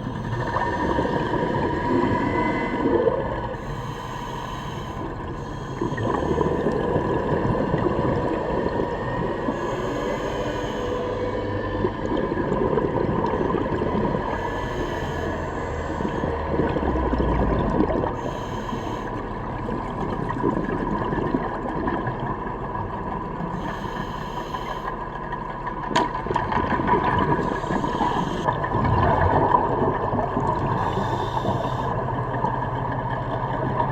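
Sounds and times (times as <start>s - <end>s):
underwater bubbles gurgling: 0.0s - 33.9s
regulator breathing hiss: 3.6s - 6.7s, 9.4s - 11.6s, 14.1s - 16.6s, 18.2s - 19.3s, 23.6s - 25.1s, 27.4s - 28.5s, 30.8s - 32.0s.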